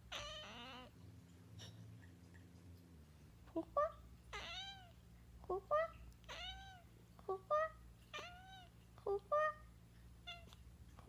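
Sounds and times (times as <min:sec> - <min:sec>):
cat meowing: 0:00.1 - 0:00.9, 0:04.3 - 0:04.9, 0:06.3 - 0:06.8, 0:07.6 - 0:08.7.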